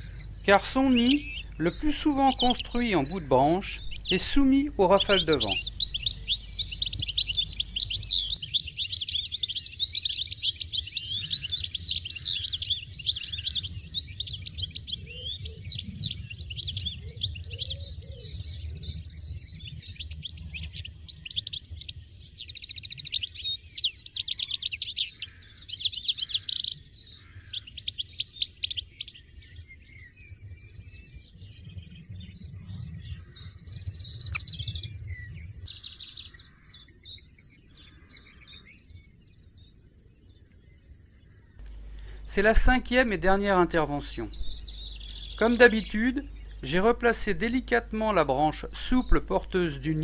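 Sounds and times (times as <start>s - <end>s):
goldfinches twittering: 0.0s - 17.7s, 41.6s - 50.0s.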